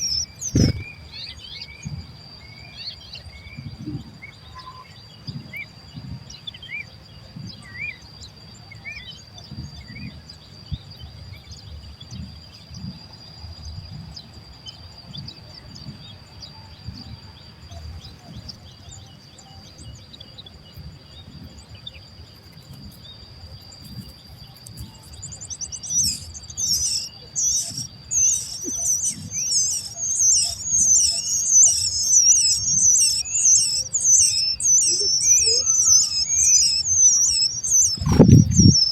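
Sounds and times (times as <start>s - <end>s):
baby birds begging chirps: 0.0s - 6.8s, 17.6s - 38.9s
steady high whine: 0.0s - 38.9s.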